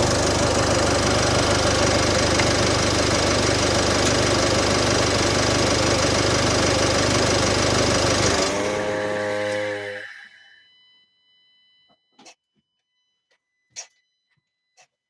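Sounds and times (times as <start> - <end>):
diesel engine running: 0.0 - 10.1
humming tone: 8.3 - 11.2.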